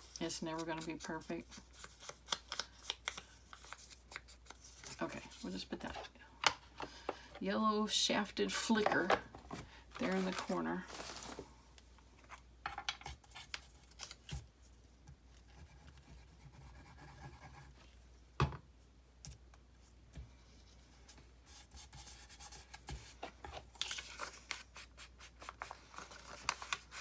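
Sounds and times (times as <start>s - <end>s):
paper rustling: 9.0s - 11.6s, 22.6s - 27.0s.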